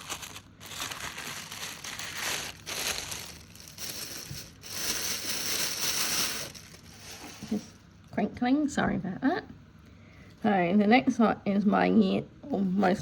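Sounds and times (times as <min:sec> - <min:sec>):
packaging crinkling: 0:00.0 - 0:07.7.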